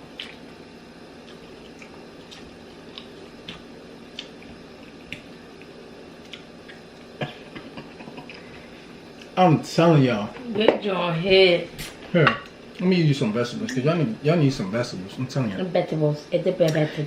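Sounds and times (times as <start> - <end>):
chewing and wet mouth noises: 0.0 - 0.6, 1.2 - 7.6
low room hum: 0.0 - 17.0.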